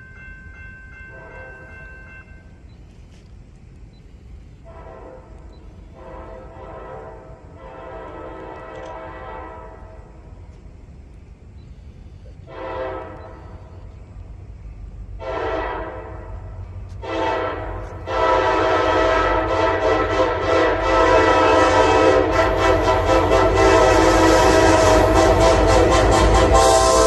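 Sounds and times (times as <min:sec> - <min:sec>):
train wheels clicking on rail: 0:00.0 - 0:27.0
locomotive air horn blasts: 0:04.6 - 0:10.2, 0:12.4 - 0:13.7, 0:15.2 - 0:27.0.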